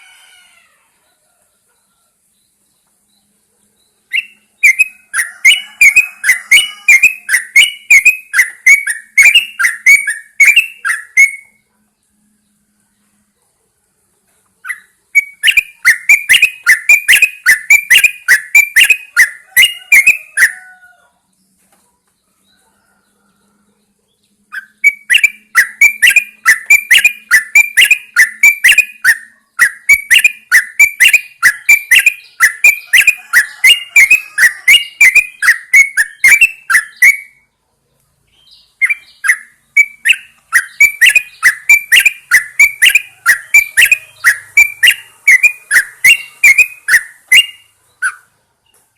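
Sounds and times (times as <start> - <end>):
bird calling quick sharp notes: 4.1 - 11.6, 14.6 - 20.6, 24.5 - 37.4, 38.5 - 48.3.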